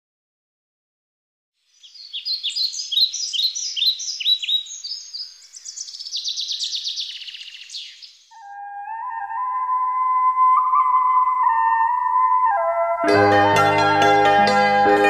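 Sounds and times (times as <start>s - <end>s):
bird chirping and trilling: 1.7s - 13.1s.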